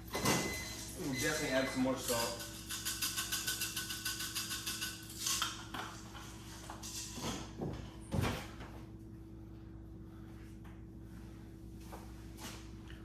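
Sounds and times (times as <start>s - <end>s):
utensils clattering against pot: 0.1s - 7.5s
salt shaker rattling: 2.0s - 6.0s.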